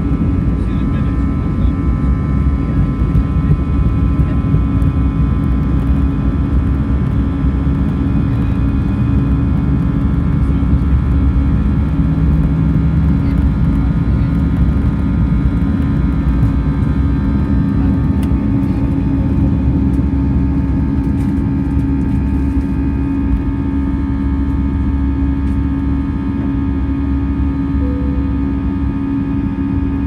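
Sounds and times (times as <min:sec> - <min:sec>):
jet engine cabin rumble: 0:00.0 - 0:30.0.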